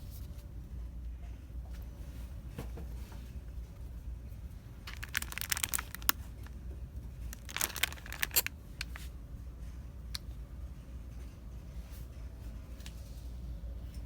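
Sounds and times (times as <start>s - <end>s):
low steady hum: 0.0s - 14.0s
plastic packaging crinkling: 4.9s - 6.6s, 7.2s - 9.0s.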